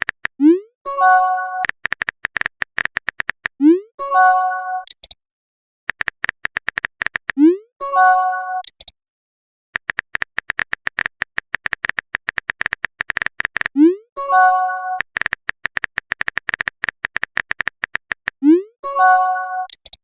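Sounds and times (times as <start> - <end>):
smartphone keyboard clicks: 0.0 - 0.4, 1.6 - 3.6, 5.9 - 7.4, 8.6 - 9.0, 9.8 - 13.7, 15.0 - 18.4, 19.7 - 20.0.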